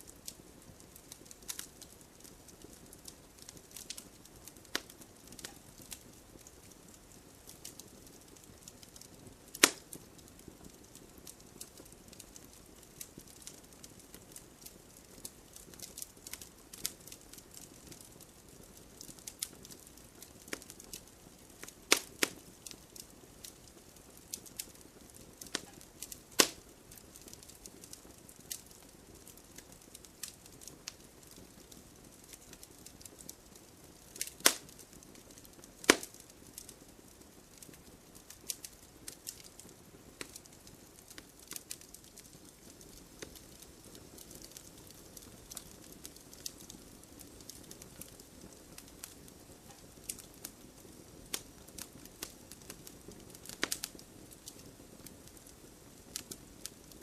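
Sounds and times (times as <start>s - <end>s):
campfire crackling and popping: 0.0s - 57.0s
faint steady hiss: 0.0s - 57.0s.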